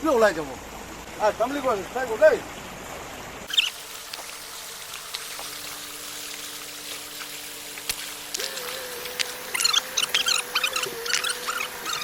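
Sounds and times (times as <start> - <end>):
faint steady hum: 0.0 - 12.0
stream water trickling: 0.0 - 12.0
small ticks and splashes: 2.5 - 12.0.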